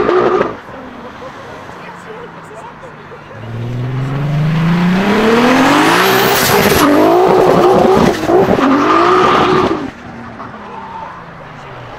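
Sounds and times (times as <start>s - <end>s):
car engine accelerating: 0.0s - 11.9s.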